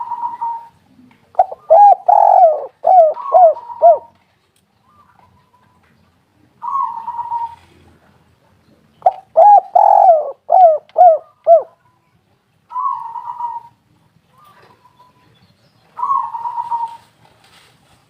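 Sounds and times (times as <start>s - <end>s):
dove cooing: 0.0s - 4.2s, 6.6s - 7.8s, 9.0s - 11.8s, 12.7s - 13.8s, 16.0s - 17.1s.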